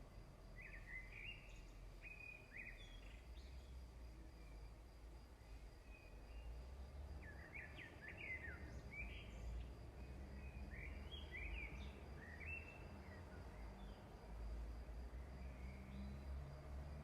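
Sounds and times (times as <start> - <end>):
small birds chirping: 0.6 - 3.8, 7.2 - 14.0.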